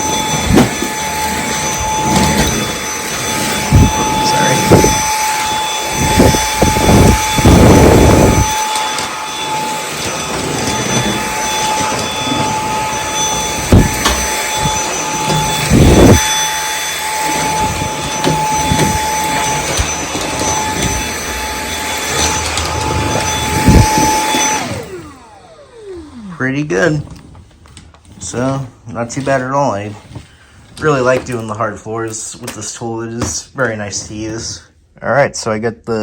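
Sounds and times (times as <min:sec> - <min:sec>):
vacuum cleaner motor whine: 0:00.0 - 0:33.1
low thuds: 0:13.6 - 0:14.8.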